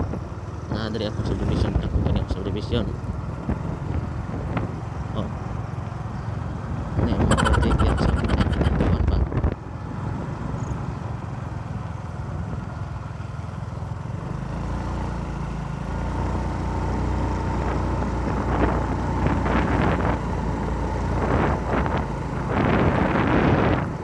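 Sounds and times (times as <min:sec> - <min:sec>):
vehicle engine running: 0:00.0 - 0:24.0
rough rushing noise: 0:07.0 - 0:09.4.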